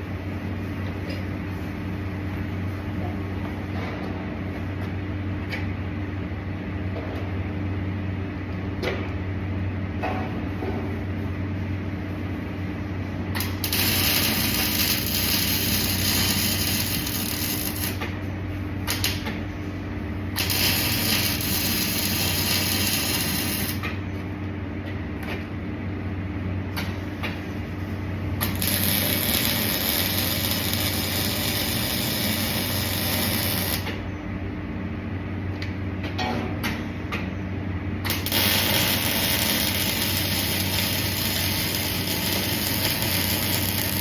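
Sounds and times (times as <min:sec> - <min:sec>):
steady machine hum: 0:00.0 - 0:44.0
welding arc crackling: 0:13.4 - 0:18.2, 0:18.8 - 0:19.4, 0:20.2 - 0:24.0, 0:28.4 - 0:34.0, 0:38.0 - 0:44.0.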